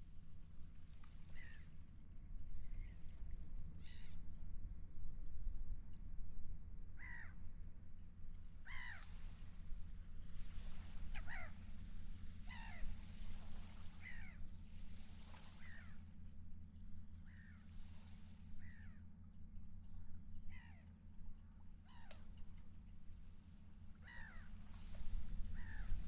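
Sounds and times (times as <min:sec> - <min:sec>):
gulls calling: 0:08.6 - 0:09.1, 0:11.0 - 0:14.5, 0:15.3 - 0:16.1, 0:18.6 - 0:19.0, 0:20.0 - 0:21.0, 0:21.7 - 0:22.4, 0:23.9 - 0:26.0.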